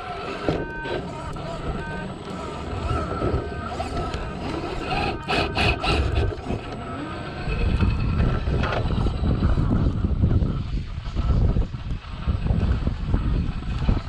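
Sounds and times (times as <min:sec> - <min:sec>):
tyres scraping on rock: 0:00.0 - 0:09.2
toy car motor whine: 0:00.0 - 0:14.0.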